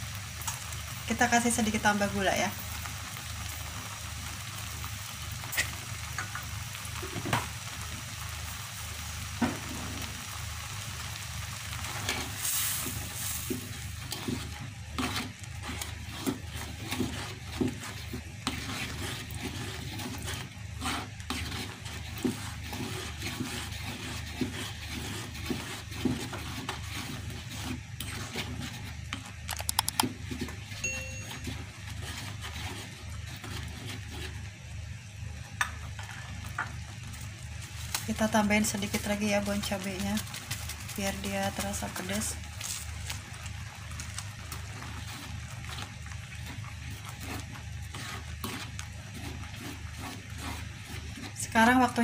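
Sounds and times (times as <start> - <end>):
sauce sizzling in a wok: 0.0 - 29.5, 31.5 - 52.0
spatula scraping a wok: 11.1 - 29.4, 30.1 - 34.5, 44.5 - 52.0.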